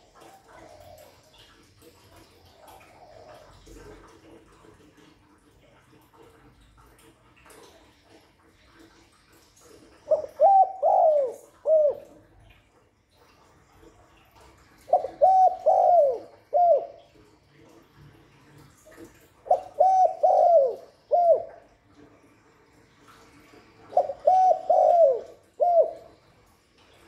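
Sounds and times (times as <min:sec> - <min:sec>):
dove cooing: 0:00.0 - 0:01.6, 0:02.4 - 0:04.0, 0:09.9 - 0:12.2, 0:14.8 - 0:17.1, 0:19.5 - 0:21.7, 0:23.9 - 0:26.2.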